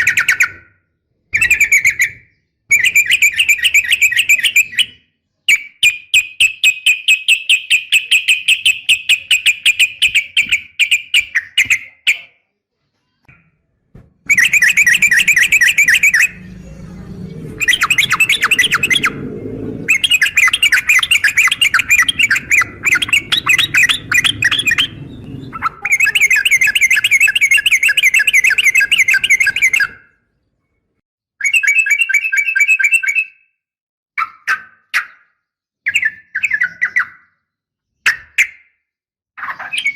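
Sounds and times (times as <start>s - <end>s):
bird rattling trills: 14.3s - 29.9s.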